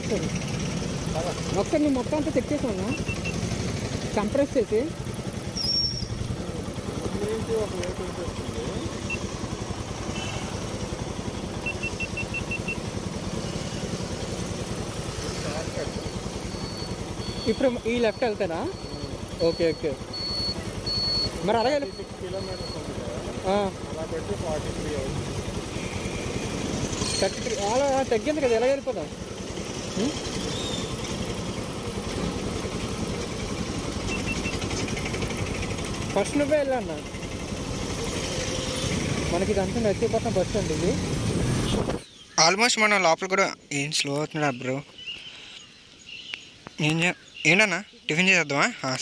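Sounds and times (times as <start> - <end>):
motorcycle engine running: 0.0 - 42.2
short high beeps: 2.9 - 3.5, 11.6 - 12.8, 15.9 - 22.9, 34.0 - 34.7.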